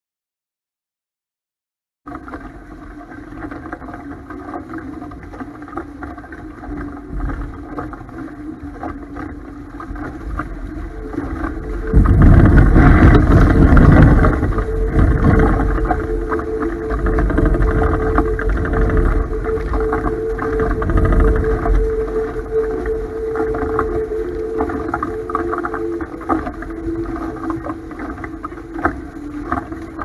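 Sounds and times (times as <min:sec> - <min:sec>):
faint steady hum: 0:02.1 - 0:30.0
water noise: 0:02.1 - 0:30.0
wind rushing over microphone: 0:10.3 - 0:30.0.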